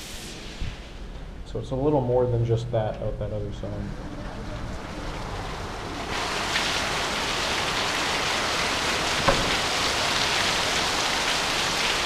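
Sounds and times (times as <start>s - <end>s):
heavy rain pouring: 3.6s - 12.0s.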